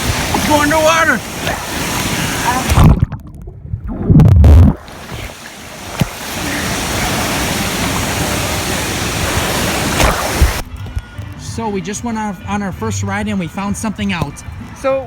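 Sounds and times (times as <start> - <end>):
water splashing: 0.0 - 10.9
muffled underwater thumps: 1.3 - 11.3.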